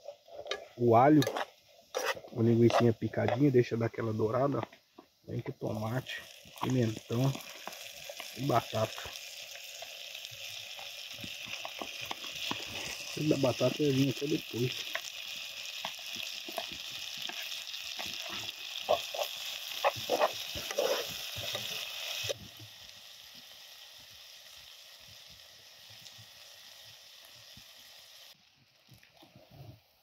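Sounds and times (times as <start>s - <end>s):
utensil scraping a pan: 0.0s - 3.6s, 15.7s - 22.3s
food sizzling in a frying pan: 0.0s - 29.2s.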